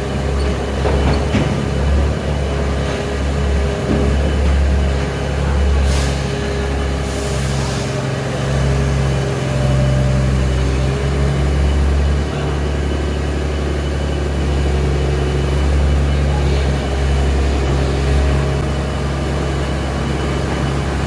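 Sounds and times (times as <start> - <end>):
heavy engine humming: 0.0 - 21.0
short hisses: 5.8 - 6.3.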